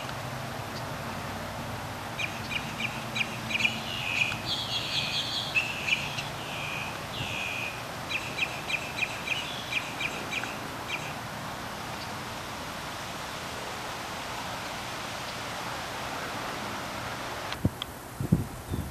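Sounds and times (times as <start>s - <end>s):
steady hiss: 0.0s - 18.9s
slurred bird calls: 2.2s - 11.2s
small birds chirping: 2.2s - 11.2s.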